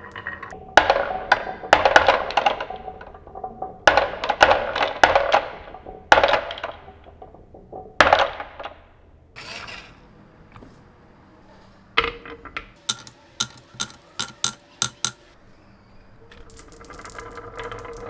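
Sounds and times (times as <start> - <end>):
toy pieces clattering: 12.8 - 15.2, 16.2 - 18.0.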